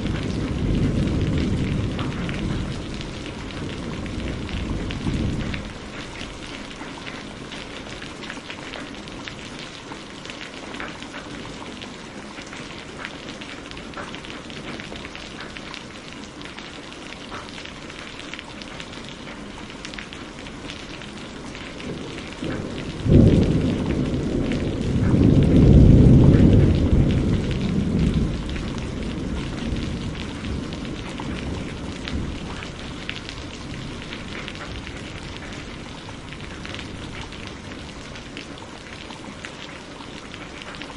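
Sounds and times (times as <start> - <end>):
thunderclap: 0.0 - 6.9, 21.7 - 38.5
heavy rain: 0.0 - 40.9.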